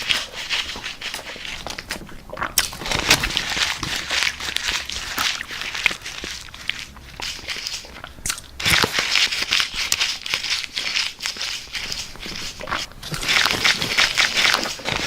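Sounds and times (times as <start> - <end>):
chips being crunched: 2.6 - 15.0.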